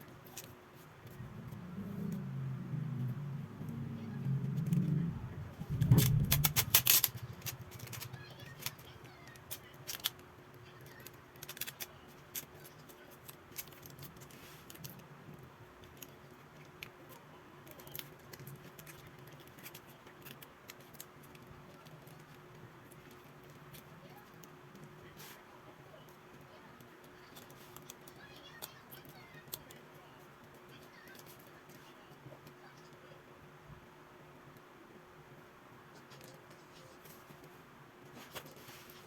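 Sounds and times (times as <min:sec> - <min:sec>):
low muffled sound: 0:00.0 - 0:09.0.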